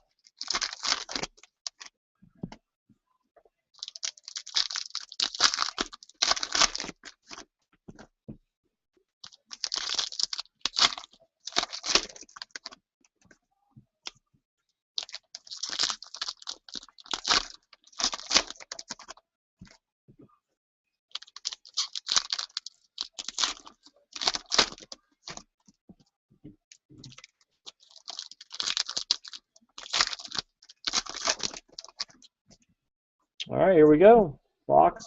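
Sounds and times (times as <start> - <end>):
plastic wrapping tearing and crinkling: 0.2 - 1.9, 3.8 - 7.4, 9.2 - 12.8, 15.0 - 19.2, 21.1 - 25.4, 27.0 - 32.3.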